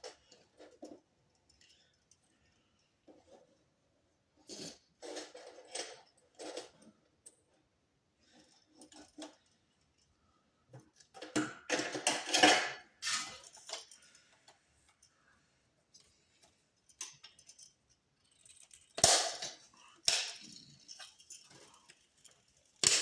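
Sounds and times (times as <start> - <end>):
plastic and metal parts clattering: 4.4 - 7.5, 8.2 - 10.1, 10.7 - 15.1, 15.9 - 23.0.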